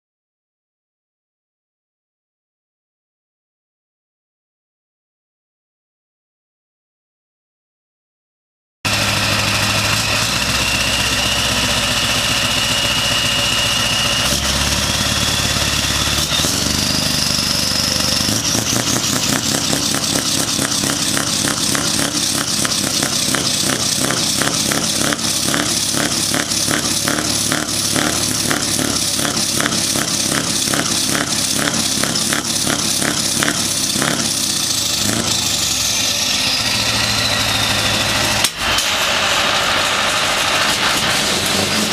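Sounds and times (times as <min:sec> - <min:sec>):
rising engine whine: 0:08.9 - 0:41.9
truck diesel engine revving: 0:08.9 - 0:41.9.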